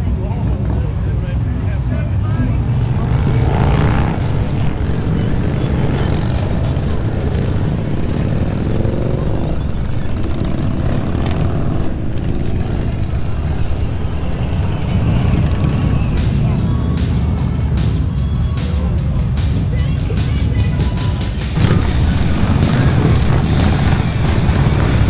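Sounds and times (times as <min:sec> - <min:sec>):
motorcycle engines rumbling: 0:00.0 - 0:25.0
motorcycles riding past: 0:02.5 - 0:18.1, 0:21.5 - 0:25.0.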